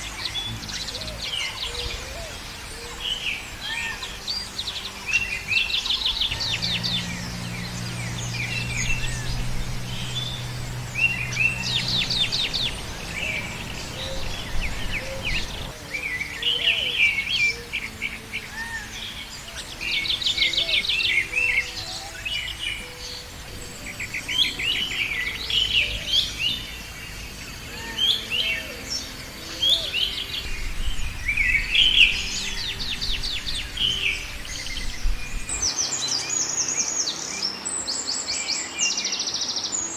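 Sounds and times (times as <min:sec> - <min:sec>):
small birds chirping and trilling: 0:00.0 - 0:39.9
low steady hum: 0:05.4 - 0:16.0.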